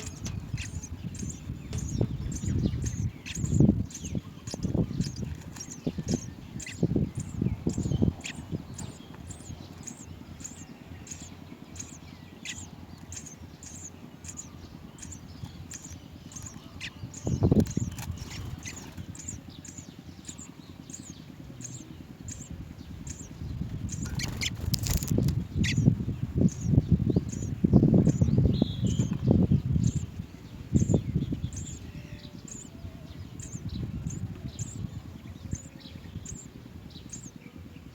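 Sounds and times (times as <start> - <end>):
low rumbling knocks: 0.0 - 3.8
small bird chirping: 0.0 - 37.9.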